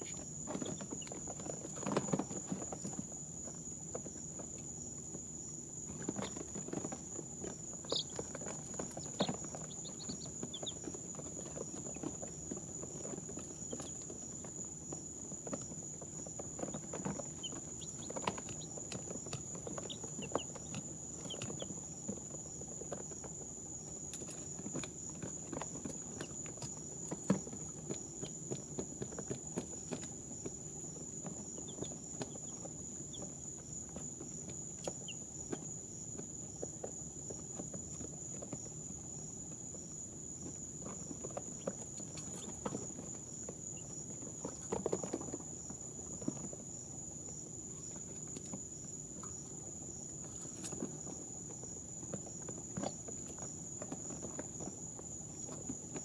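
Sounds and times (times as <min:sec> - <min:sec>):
chicks peeping: 0:00.0 - 0:01.8, 0:06.0 - 0:24.6, 0:30.7 - 0:35.6
chicks scratching and pecking: 0:00.0 - 0:56.0.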